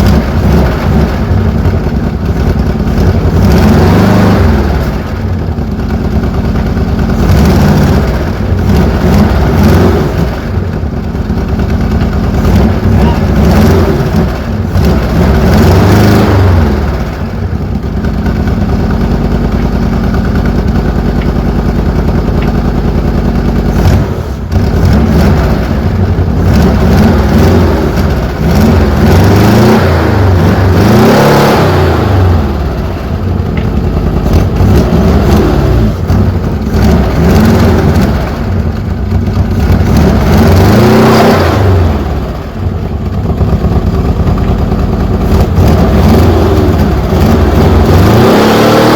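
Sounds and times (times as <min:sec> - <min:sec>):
car engine revving: 0:00.0 - 0:48.9.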